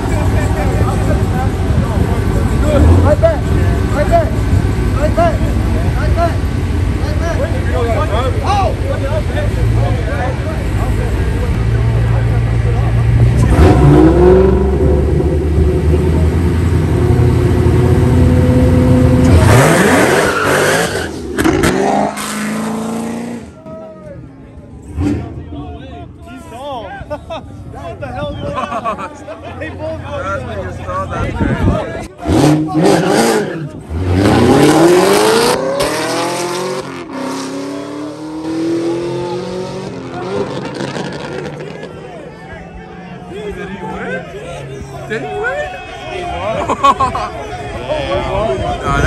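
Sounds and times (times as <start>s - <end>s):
car engines revving: 0.0s - 49.0s.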